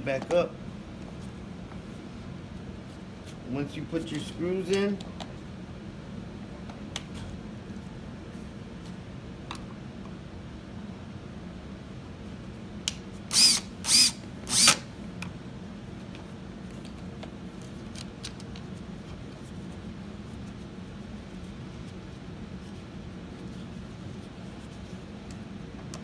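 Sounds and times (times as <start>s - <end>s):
power drill driving screws: 13.3s - 14.9s.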